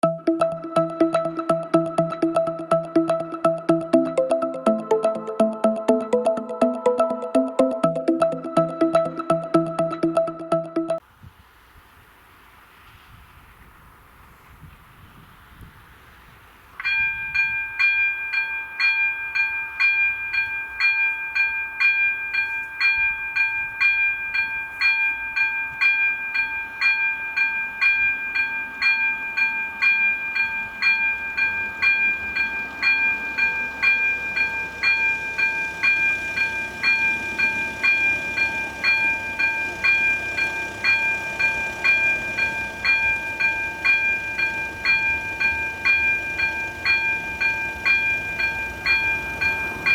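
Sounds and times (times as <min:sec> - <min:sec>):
level crossing warning bell: 0:16.8 - 0:49.9.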